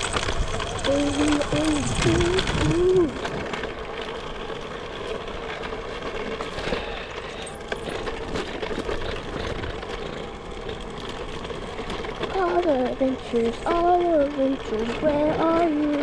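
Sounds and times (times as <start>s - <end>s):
electric motor whining: 0.0s - 16.0s
rattle of riding rough trail: 0.0s - 16.0s.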